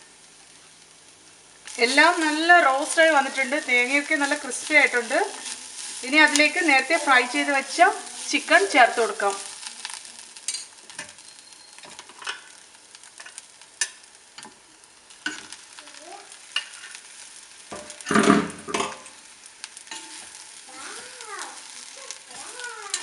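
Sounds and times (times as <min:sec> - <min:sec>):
light sizzle: 0:00.0 - 0:23.0
spatula scraping pan: 0:01.9 - 0:12.5.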